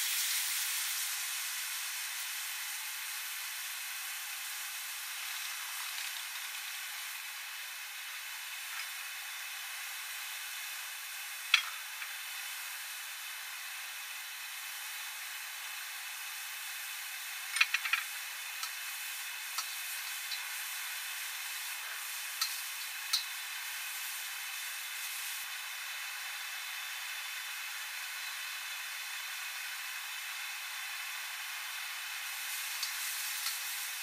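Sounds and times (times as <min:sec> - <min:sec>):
food sizzling in a wok: 0:00.0 - 0:34.0
utensil clicking against wok: 0:17.6 - 0:18.8, 0:22.4 - 0:23.3, 0:32.8 - 0:33.6.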